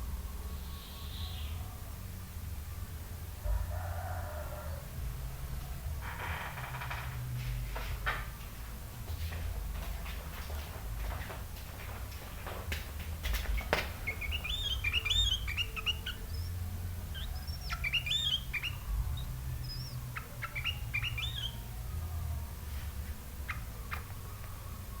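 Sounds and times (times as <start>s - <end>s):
steady low hum: 0.0s - 25.0s
bulbul whistled song: 0.1s - 1.7s, 13.6s - 25.0s.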